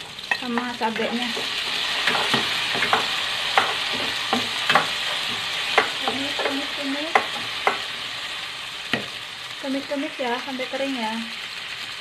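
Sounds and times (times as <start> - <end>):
garlic and chillies sizzling in oil: 0.0 - 12.0
spatula scraping and knocking pan: 0.3 - 8.0.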